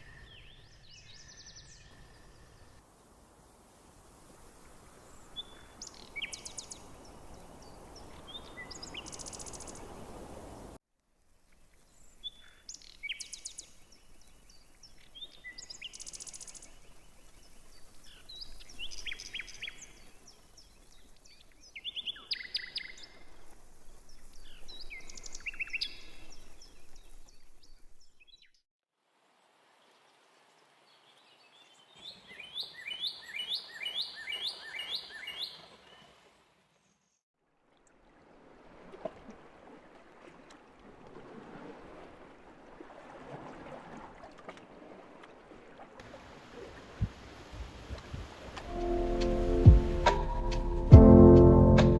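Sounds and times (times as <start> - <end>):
songbirds chirping and trilling: 30.9 - 36.1.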